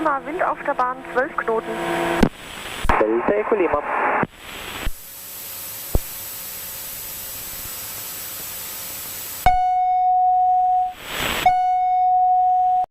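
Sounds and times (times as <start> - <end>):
intercom hiss: 0.0 - 9.7
stall warning horn: 0.7 - 2.3.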